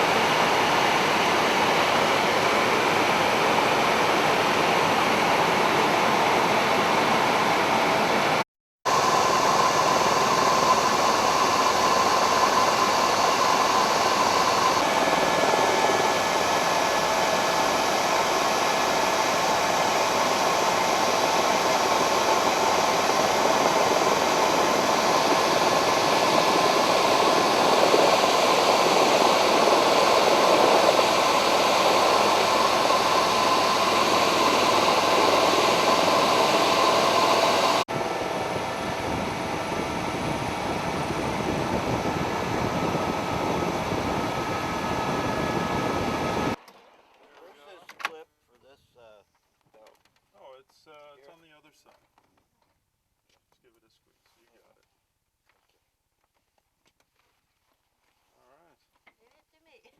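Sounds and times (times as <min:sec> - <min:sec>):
helicopter cabin hiss: 0:00.0 - 0:46.6
faint steady whine: 0:08.9 - 0:46.6.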